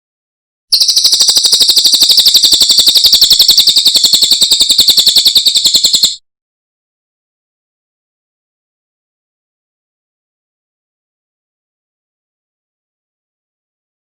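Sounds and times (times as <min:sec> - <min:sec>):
bird trilling high notes: 0:00.7 - 0:06.2.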